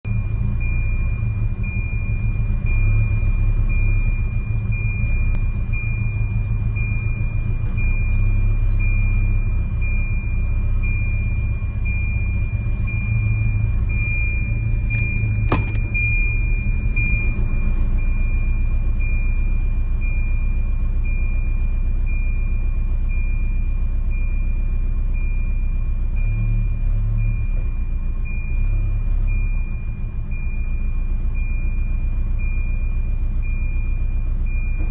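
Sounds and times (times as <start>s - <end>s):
car engine idling roughly: 0.0s - 34.9s.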